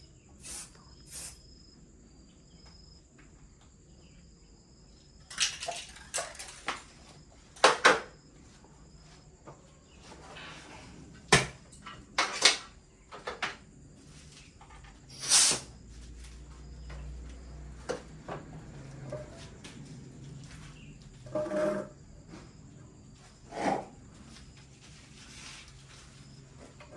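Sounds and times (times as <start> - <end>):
faint insect drone: 0.0 - 26.9
metal tools clinking and knocking: 5.3 - 7.1, 11.7 - 12.7.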